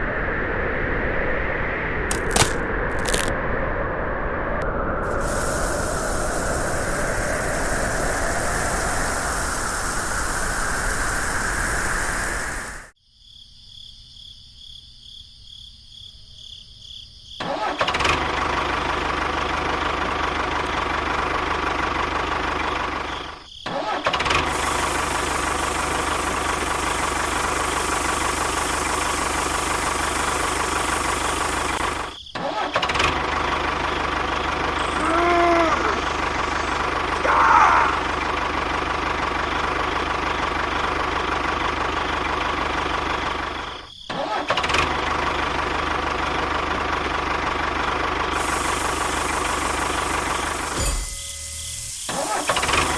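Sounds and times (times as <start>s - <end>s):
small motors whining: 34.5s - 38.4s, 48.4s - 52.9s.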